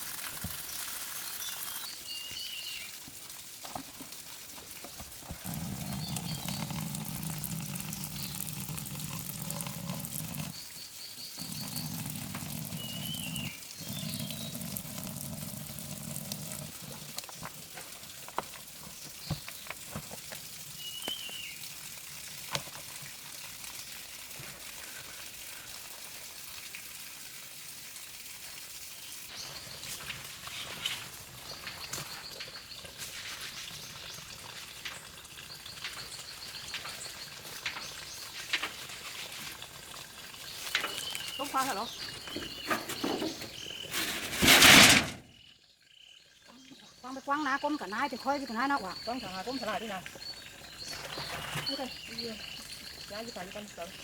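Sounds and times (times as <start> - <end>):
bird chirping: 5.4 - 15.4, 40.5 - 44.2, 45.3 - 54.0.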